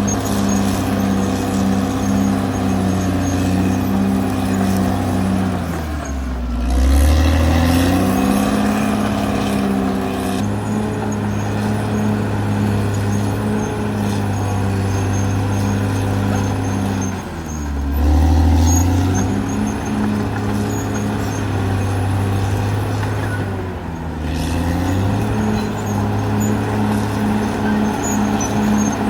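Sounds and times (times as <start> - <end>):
bulldozer diesel engine running: 0.0 - 29.0.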